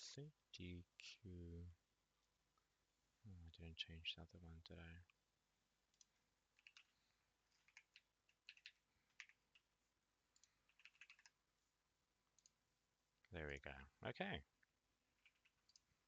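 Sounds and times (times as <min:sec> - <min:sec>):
faint keyboard typing: 0:05.8 - 0:11.5, 0:12.2 - 0:12.6, 0:14.6 - 0:16.0.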